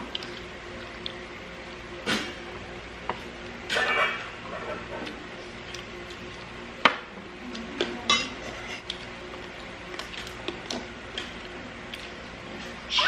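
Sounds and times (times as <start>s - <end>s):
dishes and cutlery clinking: 7.8s - 8.8s.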